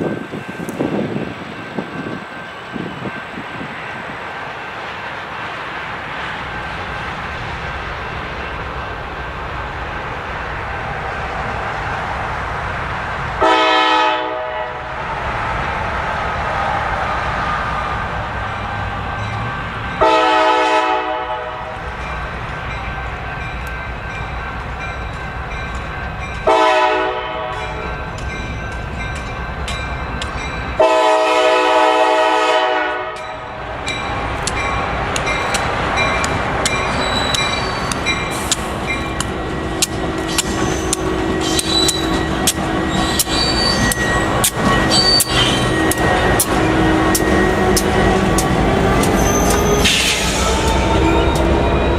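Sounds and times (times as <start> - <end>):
locomotive air horn blasts: 13.4 - 14.9, 20.0 - 21.8, 26.4 - 27.8, 30.8 - 33.4, 39.5 - 42.9.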